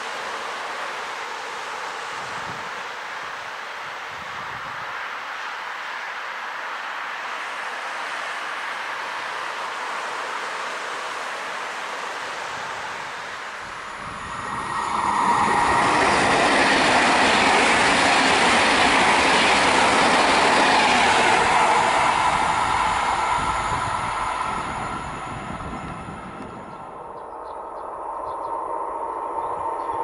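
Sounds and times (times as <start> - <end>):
diesel train passing: 0.0 - 30.0.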